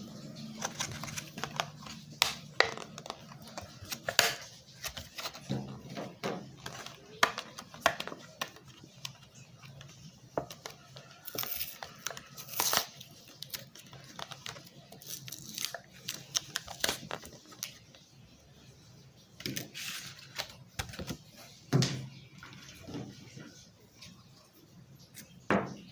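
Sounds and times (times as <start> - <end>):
plastic packaging crinkling and tearing: 0.4 - 5.5, 10.6 - 18.1
packaging rustling: 0.6 - 5.6, 10.4 - 17.9.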